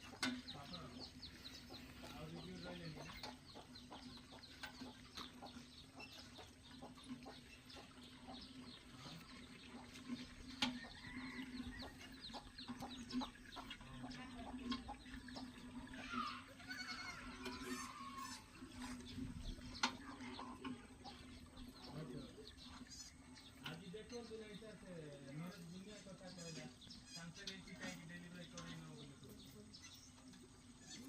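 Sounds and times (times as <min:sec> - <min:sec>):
birds chirping: 0:00.0 - 0:31.0
goat bleating: 0:16.1 - 0:18.5.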